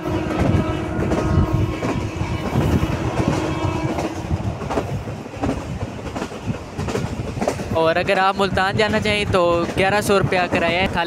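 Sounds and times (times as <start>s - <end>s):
train wheels rumbling: 0.0s - 11.0s
clacks over rail joints: 0.2s - 11.0s.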